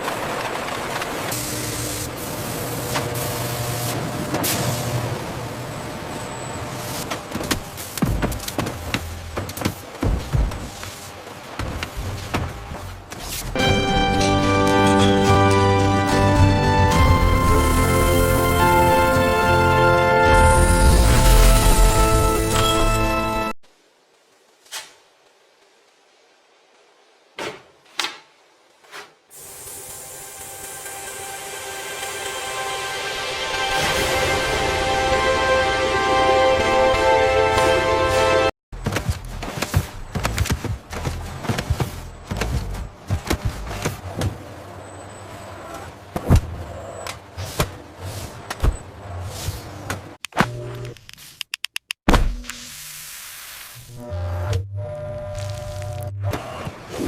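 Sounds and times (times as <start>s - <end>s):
sharp knocks and thuds: 7.3s - 10.8s, 27.4s - 29.2s, 38.8s - 44.4s
music: 13.6s - 23.6s, 30.1s - 38.5s.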